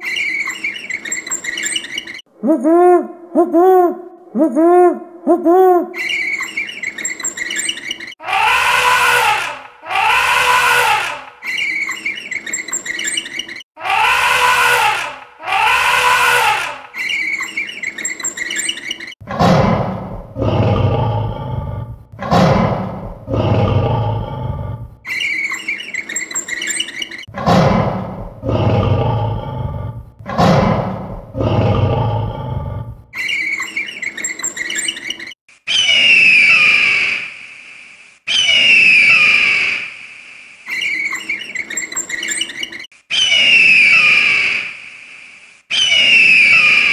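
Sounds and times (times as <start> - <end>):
birds chirping faintly: 0.0 - 2.3, 6.0 - 8.2, 11.4 - 13.7, 16.2 - 19.2, 25.1 - 27.3, 33.2 - 36.8, 40.6 - 44.3
eagle screeching: 0.0 - 2.3, 6.0 - 19.2, 25.1 - 27.3, 33.2 - 37.2, 40.7 - 44.6, 45.7 - 46.9
elephant trumpeting: 6.0 - 13.1, 13.8 - 18.7
lion roaring: 19.2 - 24.9, 27.3 - 33.0.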